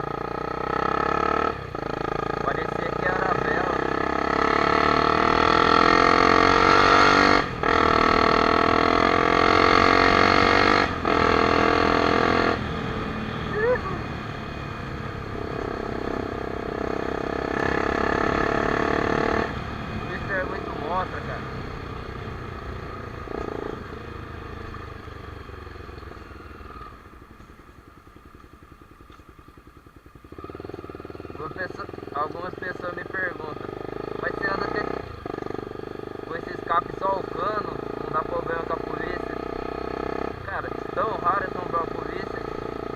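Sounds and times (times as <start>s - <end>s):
motorcycle engine accelerating: 0.0s - 42.9s.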